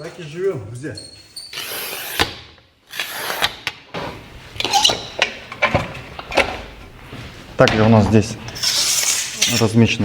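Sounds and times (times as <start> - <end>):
scraping and rubbing: 6.9 - 10.0.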